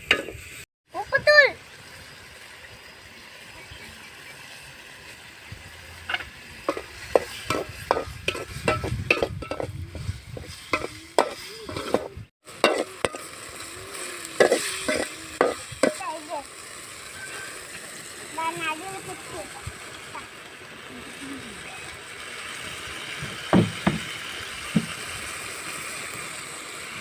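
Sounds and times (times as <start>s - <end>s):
gravy sizzling in a pan: 0.0s - 27.0s
spoon knocking and scraping a pan: 6.0s - 13.3s, 14.4s - 16.0s, 23.2s - 24.1s, 24.7s - 25.0s.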